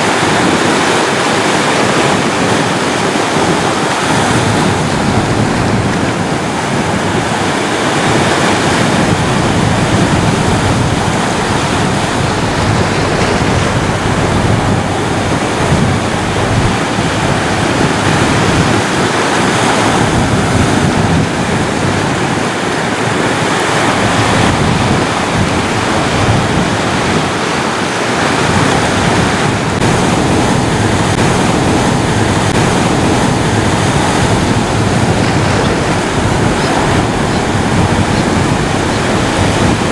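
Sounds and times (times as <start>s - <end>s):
ocean waves washing on shore: 0.0s - 39.9s.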